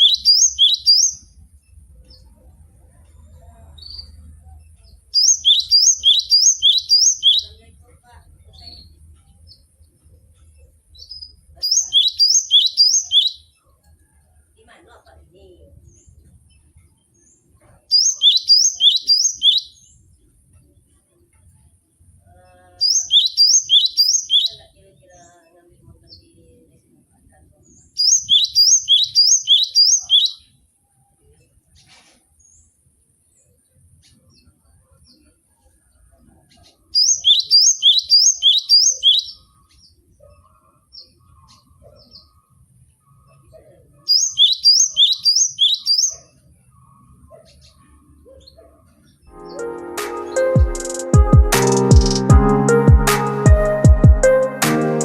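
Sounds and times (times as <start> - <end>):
bird singing high notes: 0.0 - 1.3, 5.2 - 7.6, 11.7 - 13.5, 17.9 - 19.8, 22.8 - 24.6, 49.3 - 55.0.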